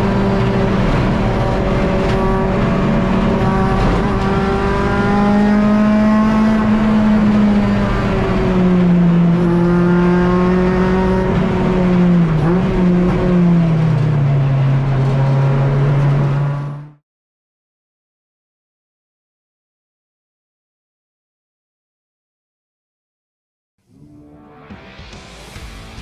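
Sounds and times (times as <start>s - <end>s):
race car engine running: 0.0s - 17.0s.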